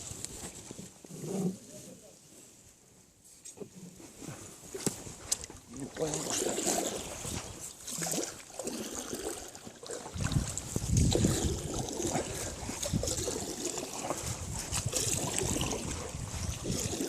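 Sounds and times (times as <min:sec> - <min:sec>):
water splashing and trickling: 0:04.8 - 0:17.0
wind buffeting microphone: 0:10.1 - 0:17.0.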